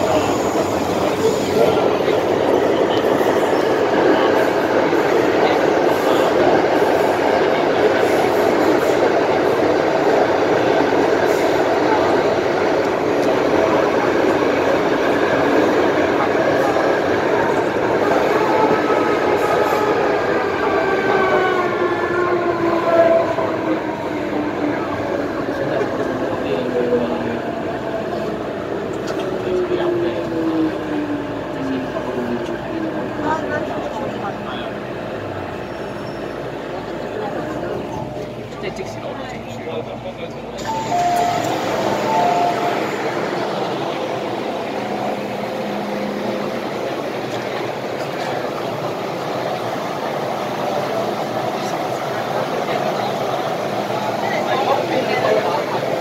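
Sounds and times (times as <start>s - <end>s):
faint train whine: 0.0s - 56.0s
train interior rumble: 0.0s - 56.0s
two-note door chime: 40.7s - 42.8s.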